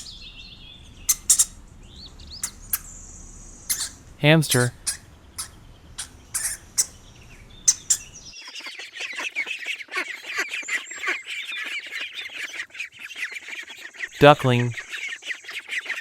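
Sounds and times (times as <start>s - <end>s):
hamsters squeaking: 0.0s - 8.3s.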